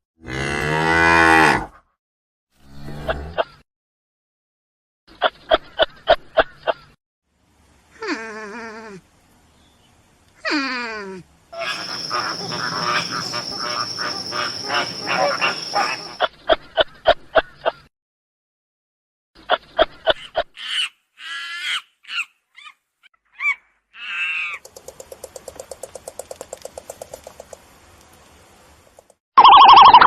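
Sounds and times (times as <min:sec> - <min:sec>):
noise with steady high tone: 0:11.6 - 0:16.2
short pitched animal calls: 0:11.6 - 0:16.2.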